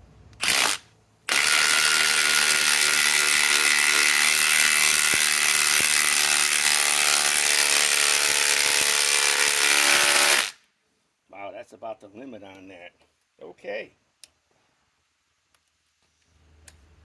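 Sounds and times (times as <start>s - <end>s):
impact driver hammering a screw: 0.4s - 10.6s.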